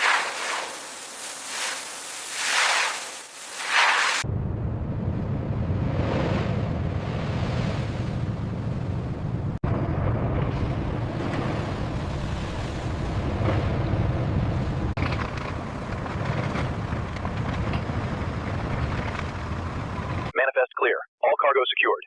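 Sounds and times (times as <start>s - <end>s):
hiss: 0.0s - 4.2s
low rumbling noise: 4.2s - 20.3s.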